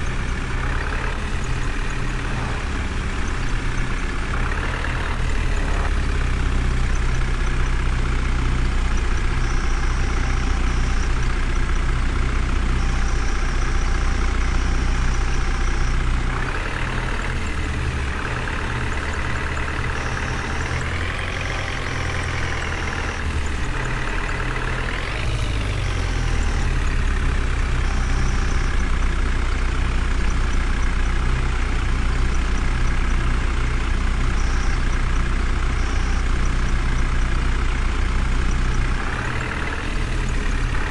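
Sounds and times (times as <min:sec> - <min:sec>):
heavy engine revving: 0:00.0 - 0:40.9.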